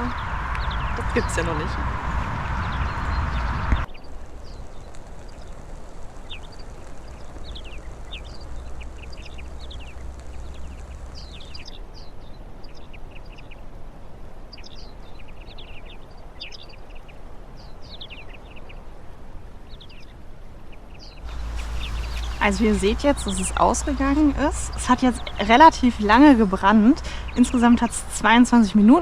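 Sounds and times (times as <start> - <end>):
steady background rushing noise: 0.0 - 12.1, 21.2 - 29.0
small birds chirping: 0.0 - 13.7, 20.9 - 29.0.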